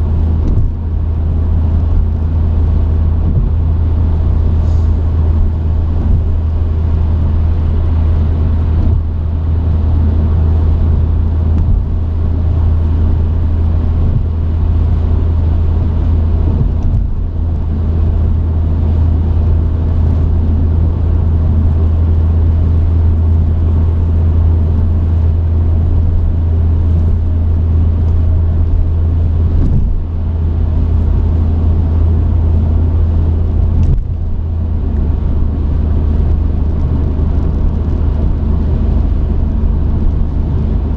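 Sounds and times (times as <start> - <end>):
truck engine drone in cab: 0.0 - 40.9.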